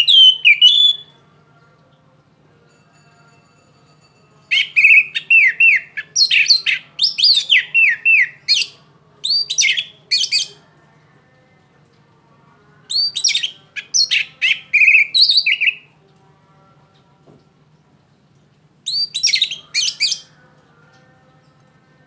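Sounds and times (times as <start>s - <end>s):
thrush singing rapidly: 0.0s - 1.1s, 4.5s - 10.6s, 12.9s - 15.9s, 18.9s - 20.5s.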